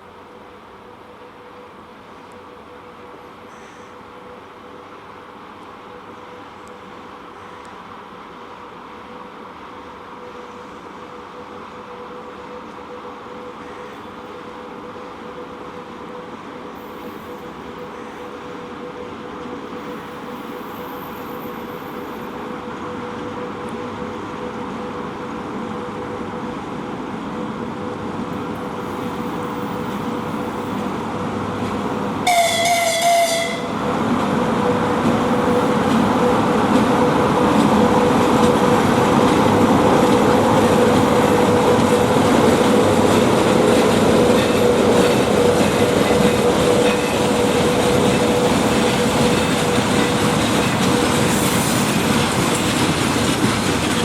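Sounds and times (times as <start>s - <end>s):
freight train rumbling past: 4.1s - 54.0s
locomotive horn blast: 32.2s - 35.8s.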